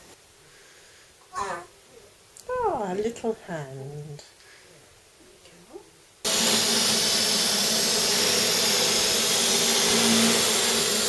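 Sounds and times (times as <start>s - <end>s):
vacuum cleaner running: 6.2s - 11.0s.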